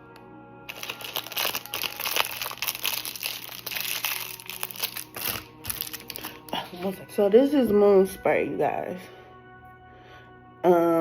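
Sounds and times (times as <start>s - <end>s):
packaging crinkling and rustling: 0.7s - 7.0s.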